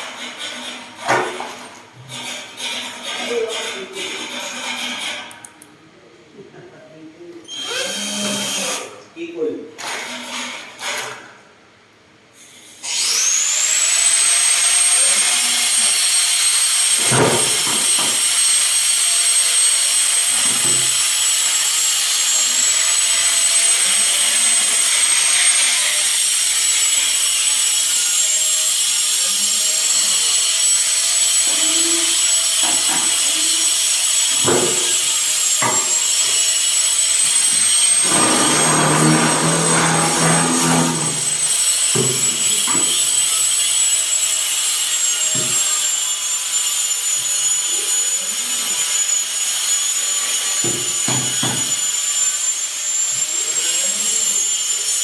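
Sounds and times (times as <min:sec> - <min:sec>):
power tool high whine and hiss: 0:07.5 - 0:08.9, 0:12.6 - 0:55.0
motor running: 0:33.1 - 0:42.3.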